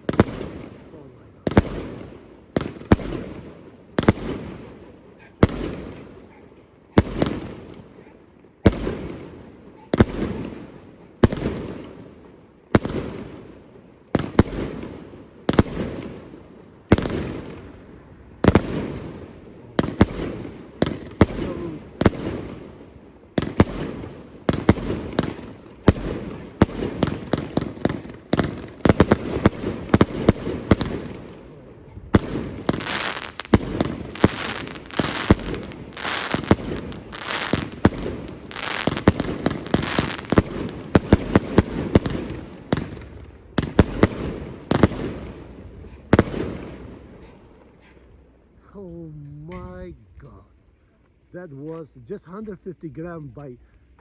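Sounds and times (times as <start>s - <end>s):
fireworks cake firing shots: 0.0s - 4.8s, 5.4s - 6.3s, 6.9s - 8.0s, 8.6s - 12.0s, 12.7s - 13.5s, 14.1s - 17.7s, 18.4s - 47.1s.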